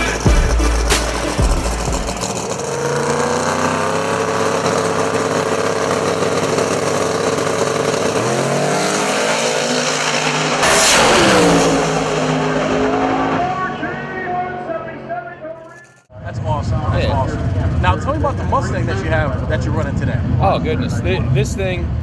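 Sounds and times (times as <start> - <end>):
loud rushing burst: 0.0 - 3.2, 9.1 - 14.2
drag race car engine: 0.0 - 22.0.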